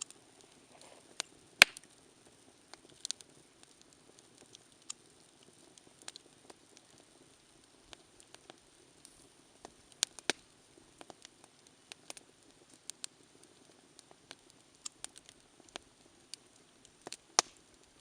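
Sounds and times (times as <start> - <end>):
campfire crackling and popping: 0.0 - 18.0
faint steady hiss: 0.0 - 18.0.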